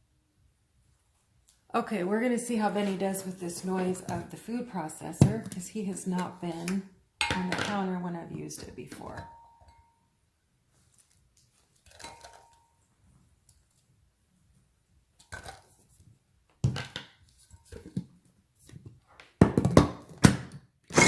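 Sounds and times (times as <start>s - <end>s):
plastic food processor knocks and clinks: 19.4s - 20.6s.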